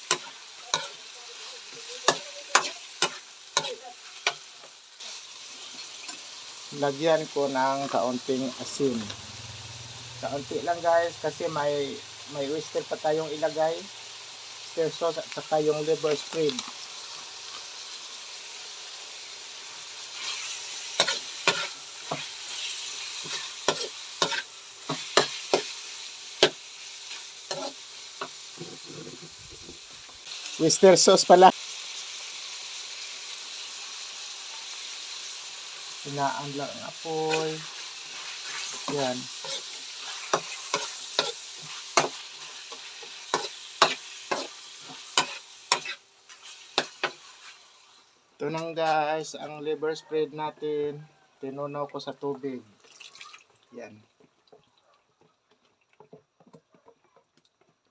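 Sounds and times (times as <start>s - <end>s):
meat sizzling in a frying pan: 0.0s - 57.9s
utensil scraping against pan: 20.1s - 25.8s, 26.4s - 29.8s, 37.3s - 47.6s.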